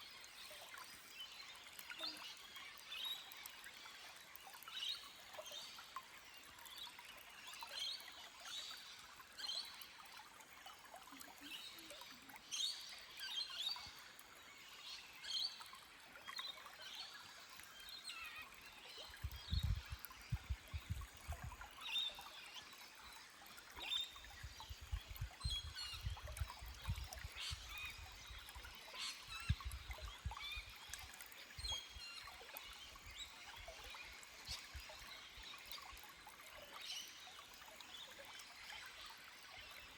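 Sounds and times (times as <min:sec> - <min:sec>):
stream trickling over rocks: 0:00.0 - 0:39.9
small birds chirping: 0:17.6 - 0:22.7.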